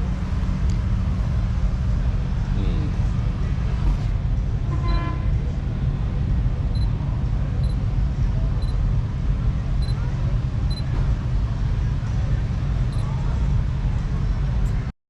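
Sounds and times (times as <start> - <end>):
voices: 0.0 - 4.2, 4.8 - 14.9
low rumble: 0.0 - 14.9
traffic noise: 0.0 - 14.9.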